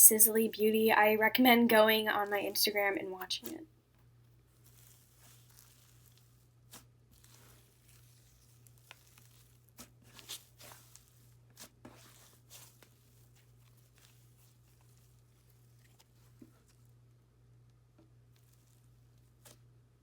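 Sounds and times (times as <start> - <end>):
faint steady hum: 0.0 - 4.5
slime crackling and popping: 4.6 - 15.1.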